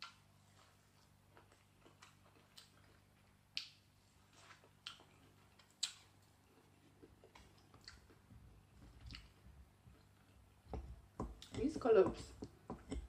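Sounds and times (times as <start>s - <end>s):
person chewing with mouth clicks: 0.0s - 10.4s.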